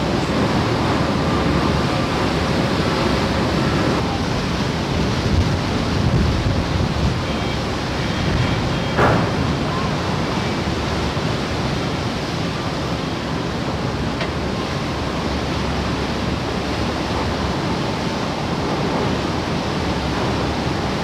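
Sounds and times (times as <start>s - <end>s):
brief knock: 9.0s - 10.1s.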